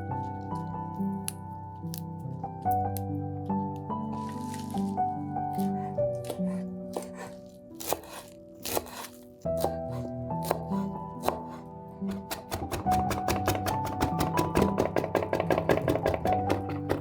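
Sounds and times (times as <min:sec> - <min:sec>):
background music: 0:00.0 - 0:17.0
knife chopping on cutting board: 0:05.6 - 0:17.0.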